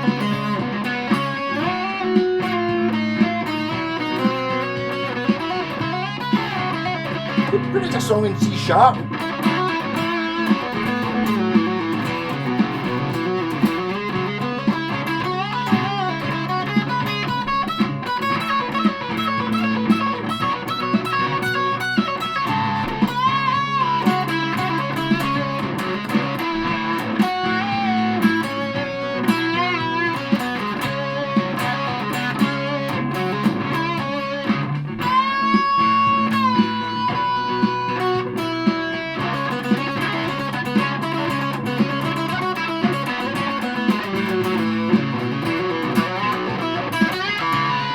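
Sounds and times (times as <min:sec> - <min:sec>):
fuzzed electric guitar lead: 0:00.0 - 0:47.9.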